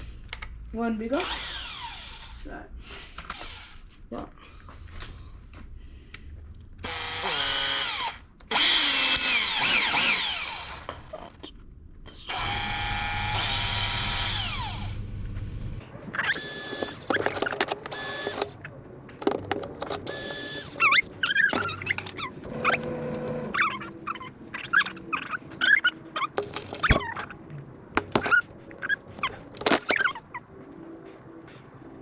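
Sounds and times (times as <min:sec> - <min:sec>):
power drill whining: 0:01.2 - 0:02.4, 0:06.8 - 0:10.9, 0:12.3 - 0:15.0, 0:16.2 - 0:18.6, 0:20.0 - 0:24.1.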